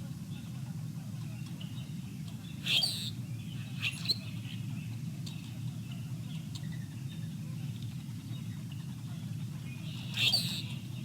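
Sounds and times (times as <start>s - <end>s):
birds chirping: 1.7s - 7.3s, 9.7s - 11.0s
harsh bird calls: 2.6s - 4.6s, 9.9s - 10.8s.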